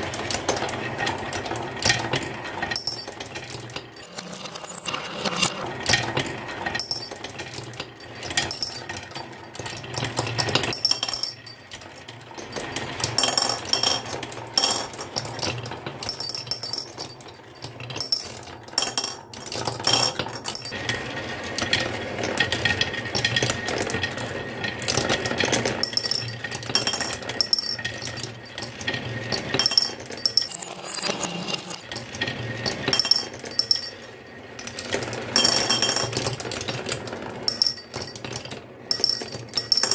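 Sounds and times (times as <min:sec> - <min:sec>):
marbles rattling down wooden run: 0:02.7 - 0:05.6, 0:25.6 - 0:32.3
bright marble clinks: 0:29.7 - 0:31.2.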